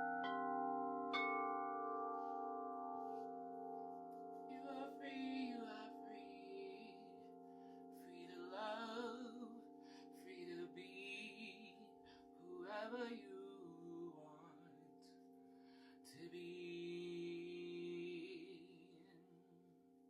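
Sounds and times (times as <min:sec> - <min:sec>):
singing bowls ringing: 0:00.0 - 0:18.6
woman singing softly: 0:04.4 - 0:15.2, 0:16.0 - 0:19.4.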